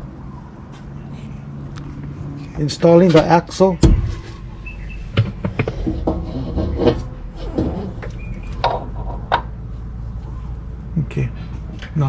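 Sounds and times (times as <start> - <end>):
metal knocks and clunks: 2.8 - 9.6.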